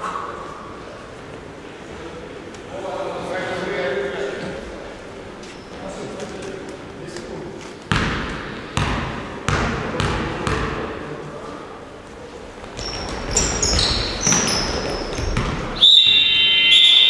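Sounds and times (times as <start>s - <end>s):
shoe squeaks: 5.4s - 5.9s, 12.7s - 17.0s
basketball bouncing on gym floor: 7.9s - 10.9s, 12.6s - 15.8s.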